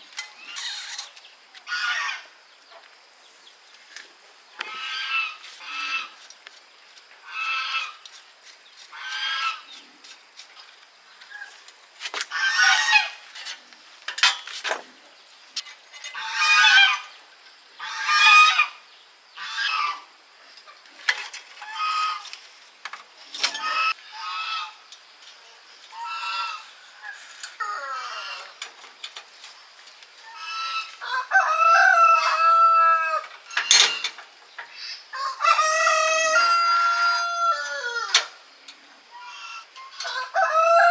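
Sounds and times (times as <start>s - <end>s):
chickens clucking: 23.4s - 24.8s, 25.9s - 29.6s, 30.2s - 40.9s
rooster crowing: 30.5s - 33.4s, 35.1s - 38.3s, 39.9s - 40.9s.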